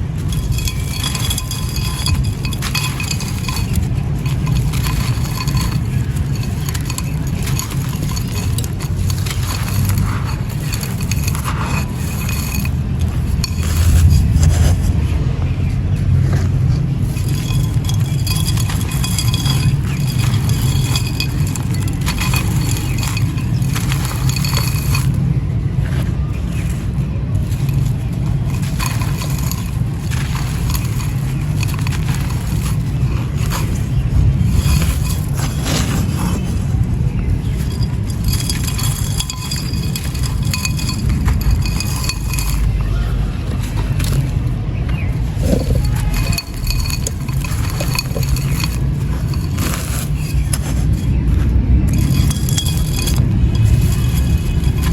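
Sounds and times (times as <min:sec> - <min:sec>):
clay and sand crumbling: 0:00.0 - 0:54.9
low rumble: 0:00.0 - 0:54.9
small clinking clicks: 0:17.0 - 0:25.2, 0:37.2 - 0:54.9.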